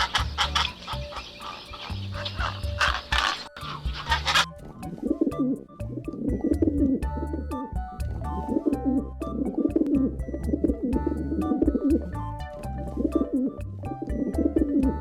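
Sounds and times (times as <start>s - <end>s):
bird calling: 0.0s - 7.7s
background music with bass line: 0.0s - 15.0s.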